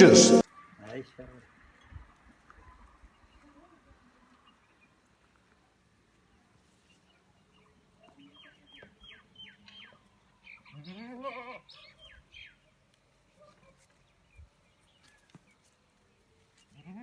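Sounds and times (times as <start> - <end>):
goat bleating: 10.8 - 11.7.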